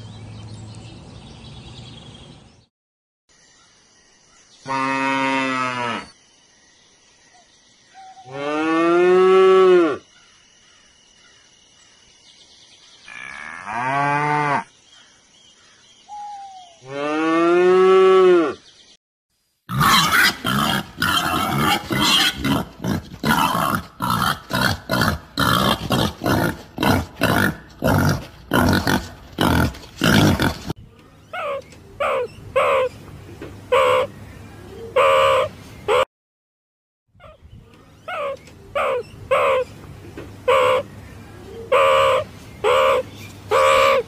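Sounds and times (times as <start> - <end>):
wild boar grunting and snorting: 19.7 - 32.3.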